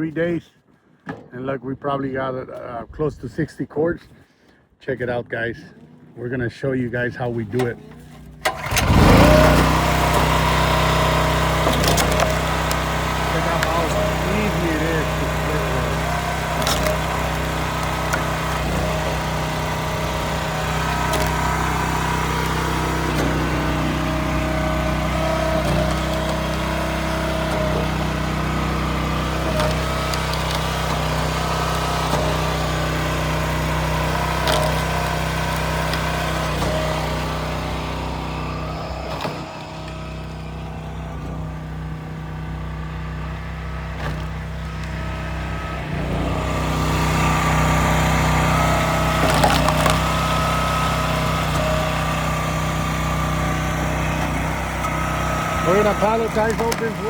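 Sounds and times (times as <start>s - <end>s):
small gasoline engine running: 7.6s - 57.0s
wood cracking as it splits: 8.4s - 37.9s, 38.5s - 41.4s, 43.9s - 57.0s.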